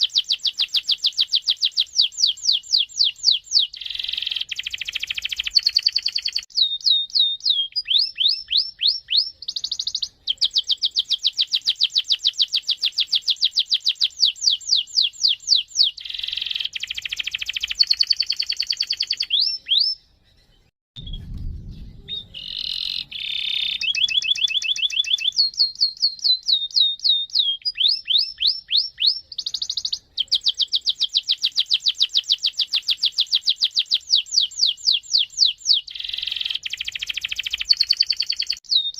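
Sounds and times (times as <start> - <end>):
canary singing trills: 0.0 - 38.9
low thump: 21.0 - 22.4.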